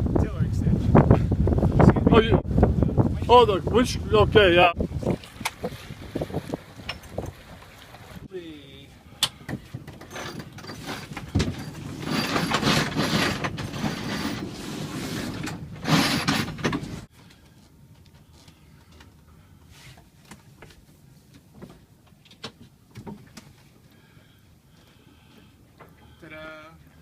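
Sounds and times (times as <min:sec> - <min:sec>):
winch grinding: 0:09.8 - 0:17.1.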